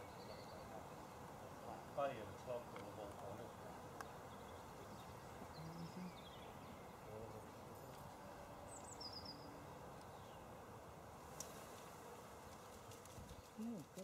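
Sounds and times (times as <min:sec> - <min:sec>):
small birds chirping: 0:00.0 - 0:10.7, 0:12.5 - 0:14.0.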